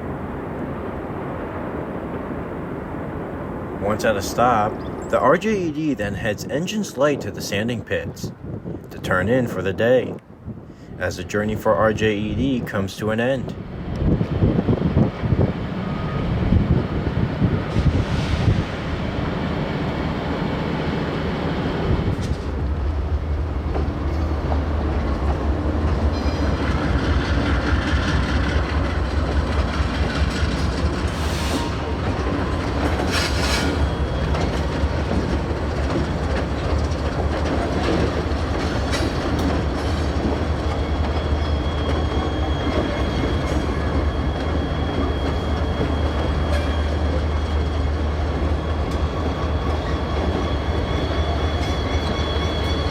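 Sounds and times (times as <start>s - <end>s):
diesel locomotive engines rumbling: 0.0s - 52.9s
wheels clattering over rails: 22.1s - 42.0s
high wheel squeal: 30.4s - 52.9s.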